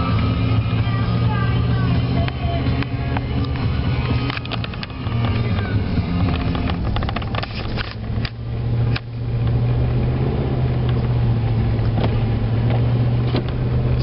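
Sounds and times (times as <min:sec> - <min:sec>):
diesel pickup engine droning: 0:00.0 - 0:14.0
sharp clicks or knocks: 0:02.2 - 0:09.6.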